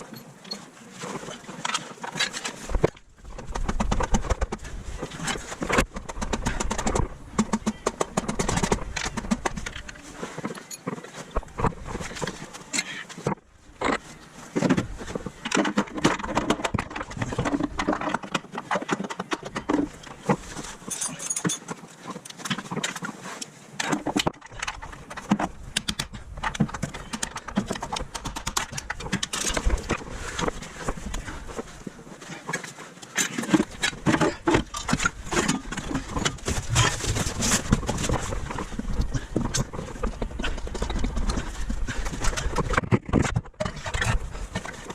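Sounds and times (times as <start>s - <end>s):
hand tools clattering: 15.6s - 23.1s.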